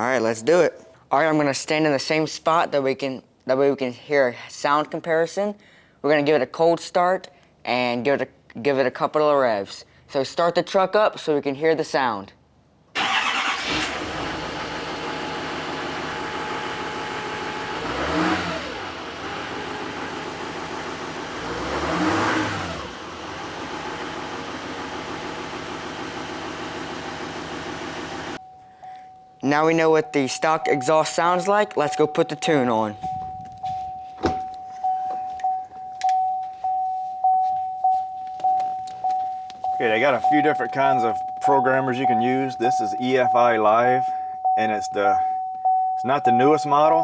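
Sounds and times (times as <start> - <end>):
diesel engine idling: 13.0 - 28.4
vehicle warning chime dinging: 28.3 - 47.0.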